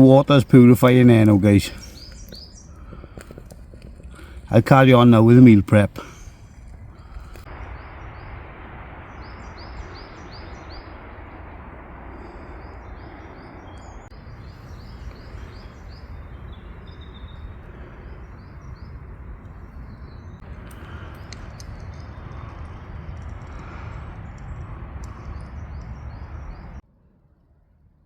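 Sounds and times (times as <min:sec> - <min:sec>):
steady rushing noise: 0:00.0 - 0:26.8
small bird chirping: 0:01.1 - 0:04.5, 0:09.0 - 0:26.8.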